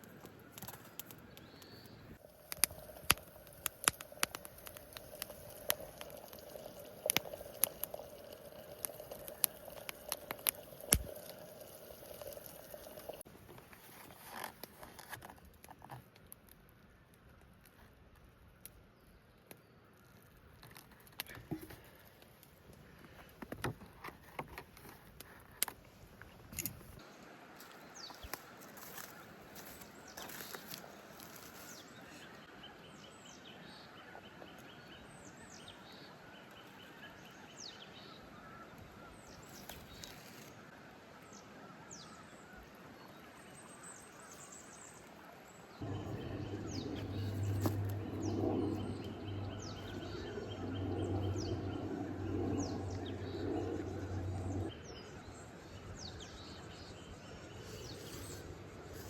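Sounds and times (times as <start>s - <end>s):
songbirds chirping: 0.3s - 13.3s, 27.0s - 59.0s
low mechanical hum: 45.8s - 54.7s.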